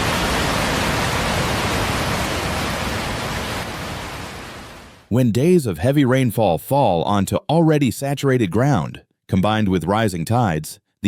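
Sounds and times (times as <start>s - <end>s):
rushing water: 0.0s - 5.1s.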